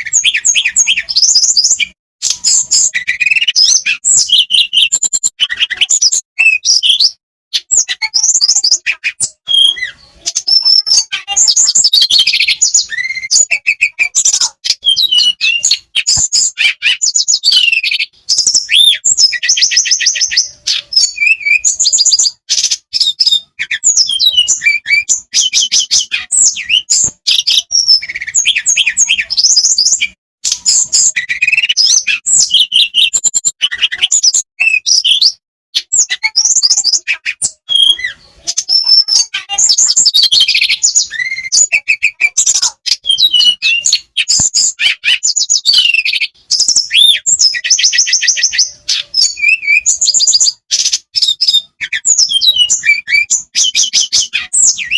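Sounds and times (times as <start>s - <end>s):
songbird singing trills and whistles: 0.0s - 54.9s.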